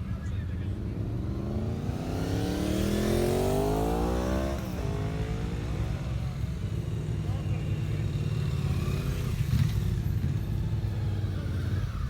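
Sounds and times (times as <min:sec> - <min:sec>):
motorcycle engine accelerating: 0:00.8 - 0:06.4.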